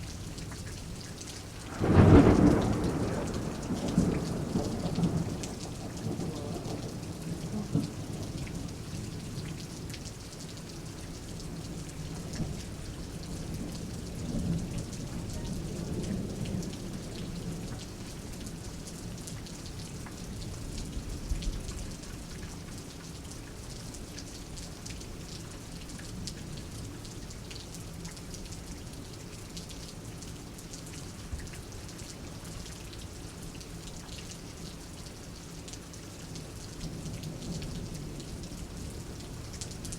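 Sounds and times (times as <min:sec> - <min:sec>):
rain falling: 0:00.0 - 0:39.9
thunder rolling: 0:01.7 - 0:06.8.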